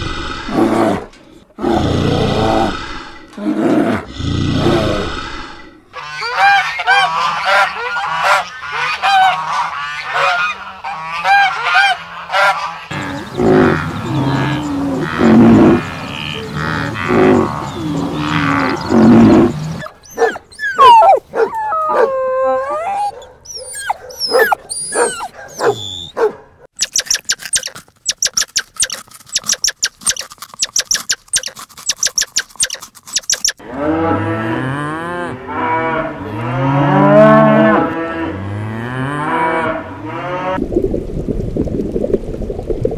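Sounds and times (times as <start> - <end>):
geese honking: 6.0 - 17.6
cow mooing: 12.9 - 19.8, 33.6 - 40.6
fast high chirping: 26.8 - 33.6.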